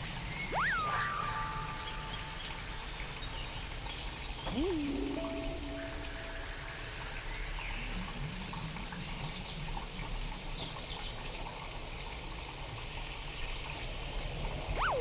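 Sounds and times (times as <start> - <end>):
steady rain: 0.0 - 15.0
faint high chirps: 0.4 - 2.4, 4.5 - 6.8, 14.8 - 15.0.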